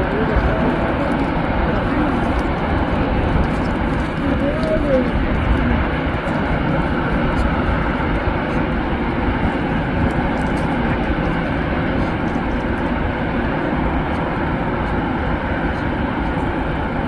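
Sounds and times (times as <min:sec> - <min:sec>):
jet engine roar: 0:00.0 - 0:17.0.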